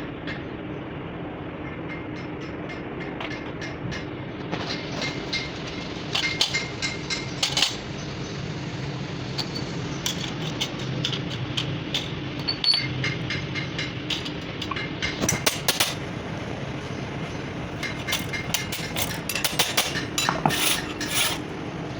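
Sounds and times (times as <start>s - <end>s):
machine running: 4.6s - 21.9s
metallic clicks and clinks: 9.4s - 13.4s.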